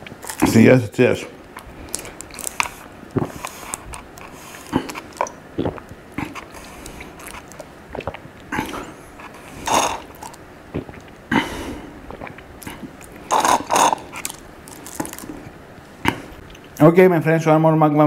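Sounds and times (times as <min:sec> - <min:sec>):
biting and chewing food: 0:00.0 - 0:16.8
wet mouth clicks: 0:01.6 - 0:11.2, 0:12.1 - 0:15.3.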